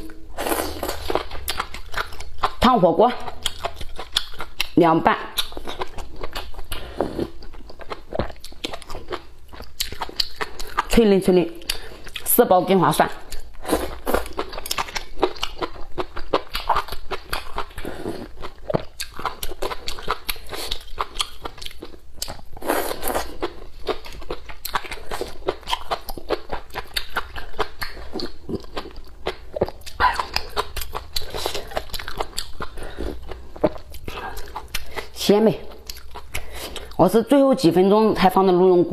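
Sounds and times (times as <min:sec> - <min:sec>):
crunchy chewing: 0:00.4 - 0:02.6, 0:03.2 - 0:11.0, 0:13.3 - 0:37.0.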